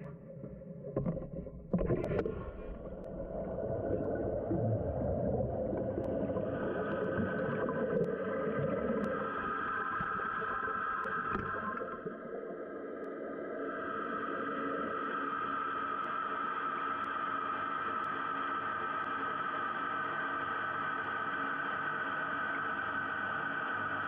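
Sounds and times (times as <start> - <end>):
fill valve hissing and whining: 2.9 - 12.0.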